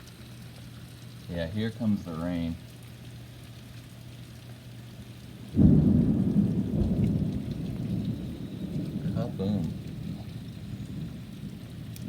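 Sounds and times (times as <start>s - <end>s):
steady rain: 0.0s - 12.0s
loud thunderclap: 5.6s - 11.9s.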